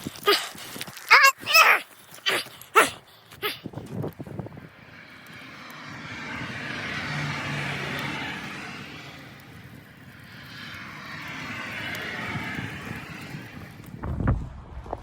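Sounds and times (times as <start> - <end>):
aircraft engine hum: 3.1 - 14.1.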